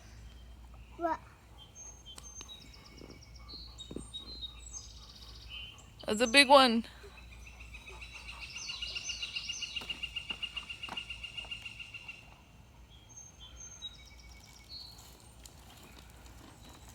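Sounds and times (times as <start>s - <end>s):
bird trilling: 1.0s - 12.3s.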